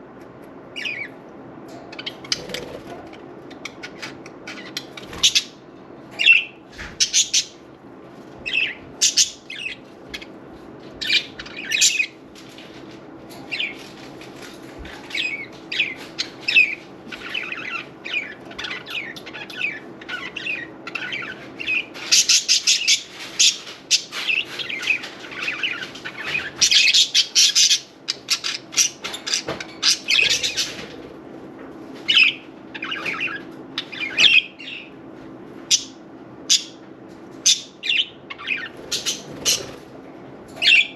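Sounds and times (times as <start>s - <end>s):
wings fluttering: 2.1s - 3.2s, 38.6s - 40.0s
budgerigars chirping: 3.5s - 5.6s, 8.5s - 10.3s, 11.0s - 12.2s, 15.1s - 30.8s, 37.5s - 39.8s.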